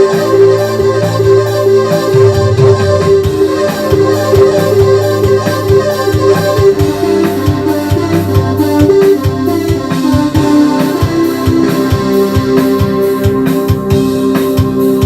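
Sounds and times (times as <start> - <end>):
steady drum beat: 0.0 - 15.0
synthesizer organ-like chords: 0.0 - 15.0.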